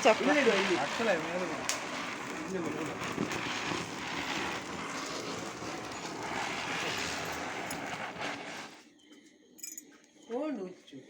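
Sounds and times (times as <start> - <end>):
spinning firecracker hiss: 0.0 - 8.9.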